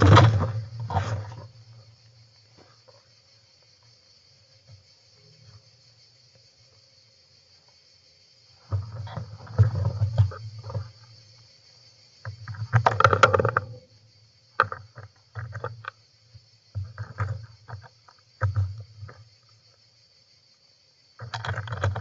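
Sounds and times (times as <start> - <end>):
rustling and knocks: 0.0 - 1.6.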